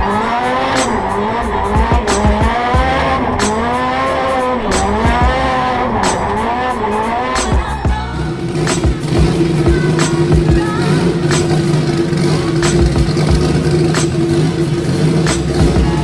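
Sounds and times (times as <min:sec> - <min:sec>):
car engine revving: 0:00.0 - 0:16.0
music with a steady beat: 0:00.0 - 0:16.0
tyres squealing: 0:00.0 - 0:16.0.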